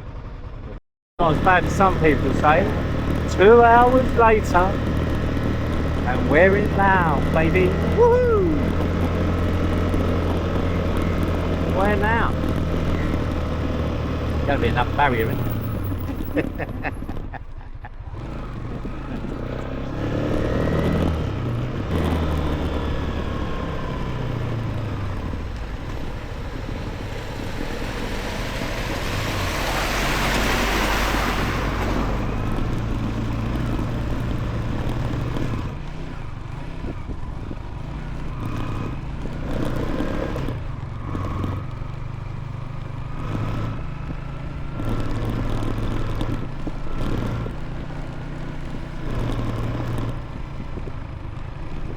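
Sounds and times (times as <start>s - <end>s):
motorcycle engine running: 0.0s - 51.9s
road noise: 0.0s - 51.9s
wind rushing: 25.3s - 32.5s.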